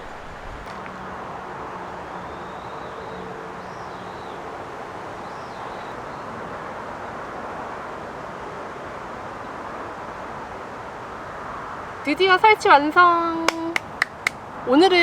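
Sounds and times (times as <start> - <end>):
small birds chirping: 0.0 - 0.8, 2.0 - 4.4, 5.1 - 6.4.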